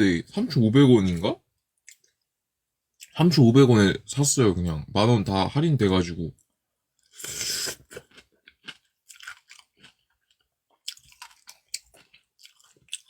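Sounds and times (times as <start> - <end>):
person chewing crunchy food: 7.0 - 13.0.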